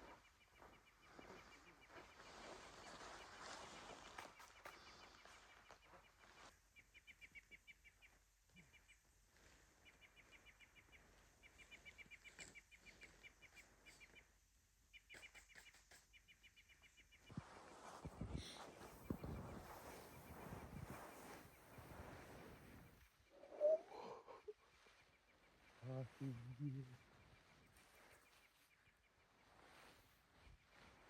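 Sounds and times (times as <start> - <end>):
bird call of rapid high pips: 23.3 - 24.6.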